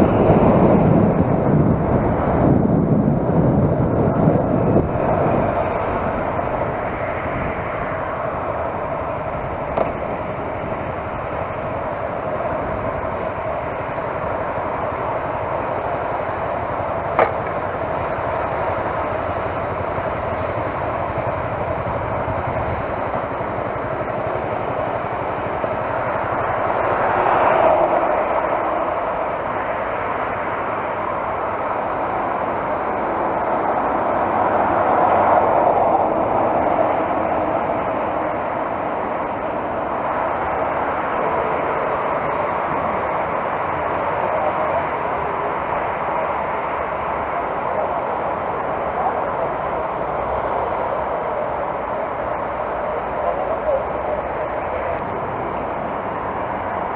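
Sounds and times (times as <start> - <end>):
motorcycle engine: 0.0 - 27.1
wind rush: 0.0 - 56.9.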